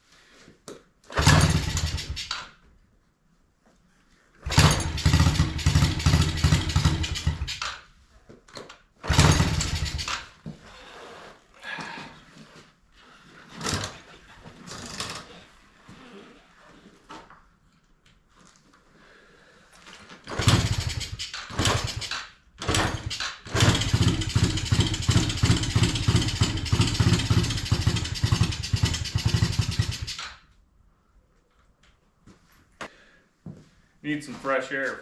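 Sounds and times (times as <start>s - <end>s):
small engine running in bursts: 1.2s - 2.3s, 4.4s - 7.6s, 9.1s - 10.2s, 20.3s - 30.3s.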